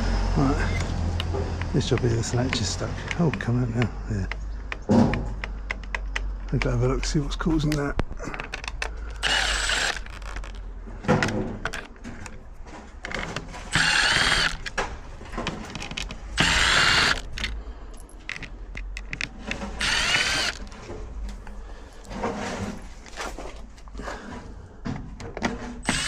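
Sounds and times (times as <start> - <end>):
power drill whining: 0.0 - 3.3, 8.3 - 10.6, 13.0 - 17.6, 19.0 - 22.2
clicks and knocks: 0.8 - 26.0.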